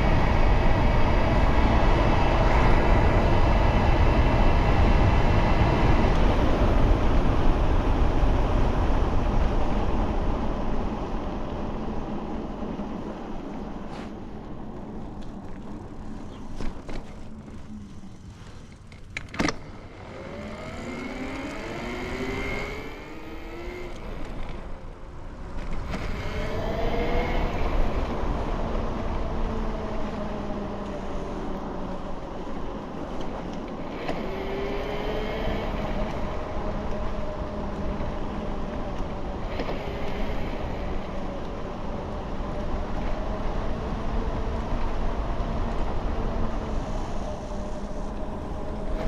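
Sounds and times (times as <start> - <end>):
wind rush on microphone: 0.0 - 18.8, 19.8 - 49.0
electric bike motor whining: 19.7 - 49.0.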